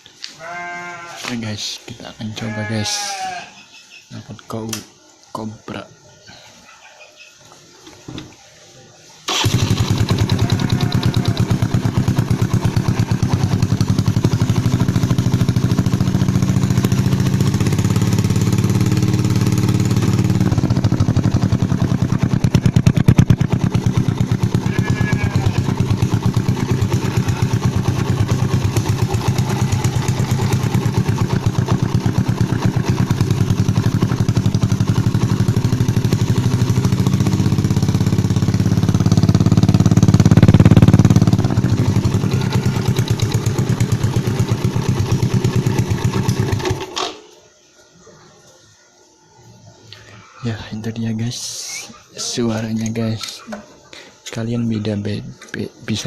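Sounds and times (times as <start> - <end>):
motorcycle engine running: 9.3 - 47.0.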